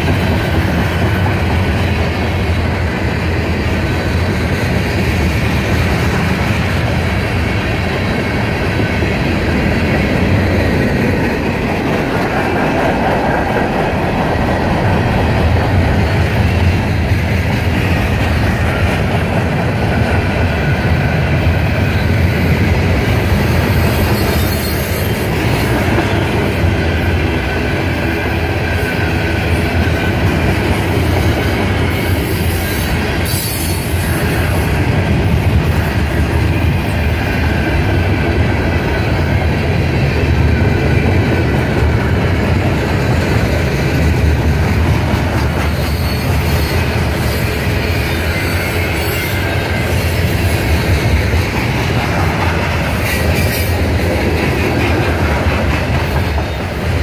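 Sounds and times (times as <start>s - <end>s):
train wheels rumbling on rails: 0.0s - 57.0s
high wheel squeal: 23.7s - 25.3s, 31.9s - 34.6s, 45.6s - 51.0s.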